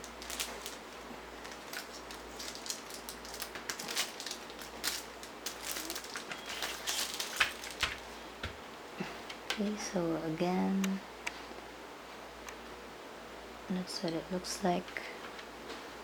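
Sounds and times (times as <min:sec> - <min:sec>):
plastic case clicks and rustles: 0:01.5 - 0:08.6.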